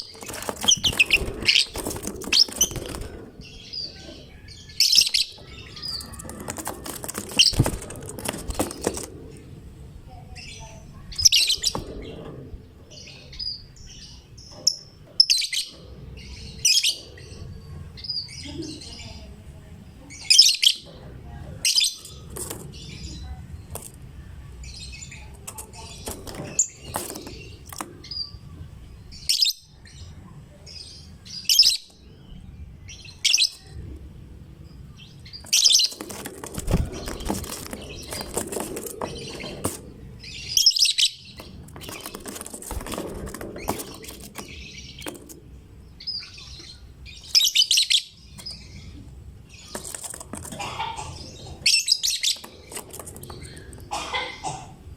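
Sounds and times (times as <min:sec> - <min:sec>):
lovebird chirping: 0:45.9 - 0:49.8.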